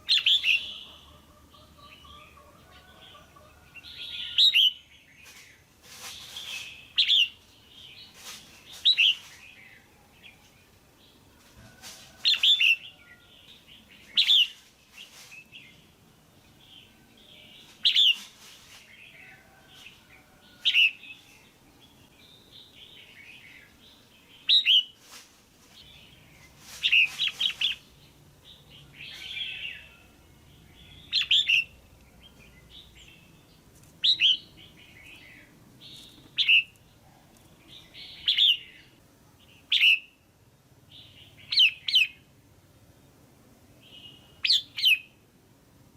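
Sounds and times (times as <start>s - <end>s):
bird chirping calls: 0.0s - 11.2s, 12.2s - 25.0s, 25.8s - 40.2s, 40.9s - 42.3s, 43.8s - 45.2s.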